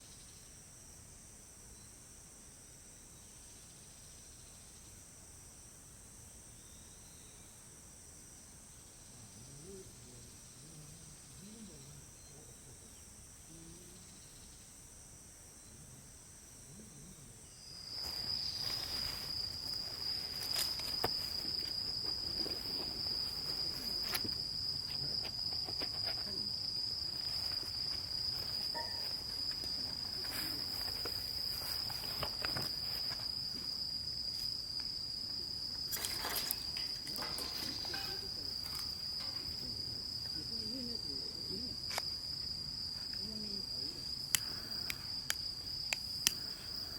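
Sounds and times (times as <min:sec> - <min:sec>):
high insect trill: 0:00.0 - 0:46.9
insects chirping: 0:00.0 - 0:46.9.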